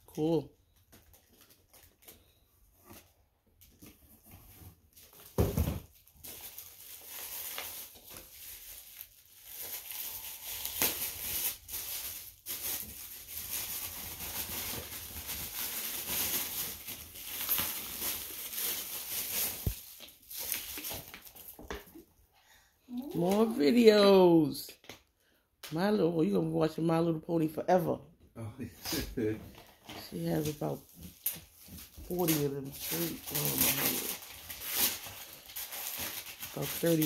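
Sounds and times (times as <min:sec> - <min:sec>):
wrapping paper tearing and crumpling: 0:01.1 - 0:21.6, 0:29.6 - 0:37.0.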